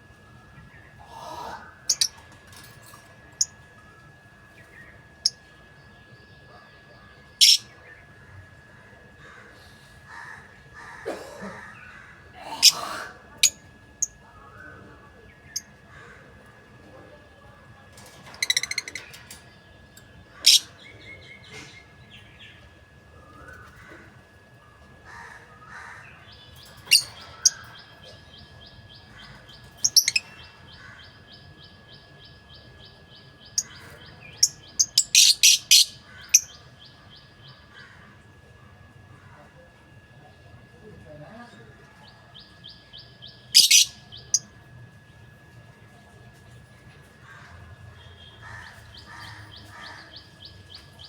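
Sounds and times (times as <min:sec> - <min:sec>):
birds chirping sharply: 0:00.6 - 0:03.8, 0:07.2 - 0:07.8, 0:17.9 - 0:22.8, 0:25.6 - 0:37.7, 0:42.4 - 0:44.5.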